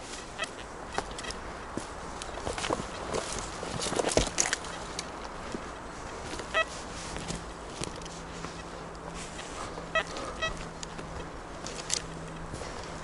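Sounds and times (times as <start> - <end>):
busy road traffic: 0.0 - 13.0
wind in forest: 0.0 - 13.0
short pitched beeps or calls: 6.5 - 6.8, 9.9 - 10.6.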